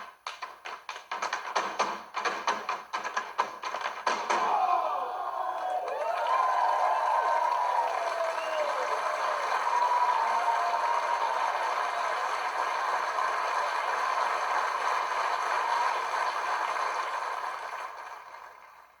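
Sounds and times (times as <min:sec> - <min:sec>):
audience applauding: 0:01.8 - 0:19.0
audience cheering: 0:04.1 - 0:18.8.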